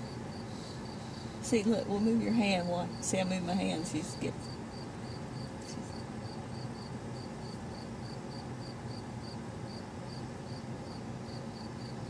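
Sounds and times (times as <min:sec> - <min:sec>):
cricket chirping: 0:00.0 - 0:01.4, 0:02.6 - 0:12.0
low steady hum: 0:00.0 - 0:12.0.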